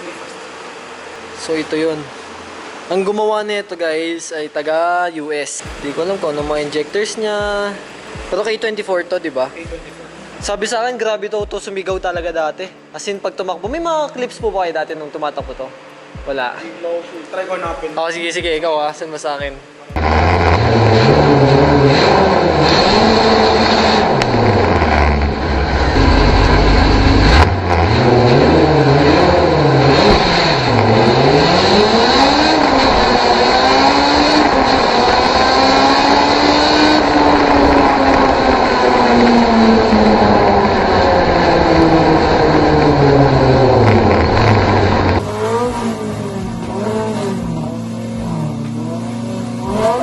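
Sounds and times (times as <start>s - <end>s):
race car engine revving: 20.0s - 50.0s.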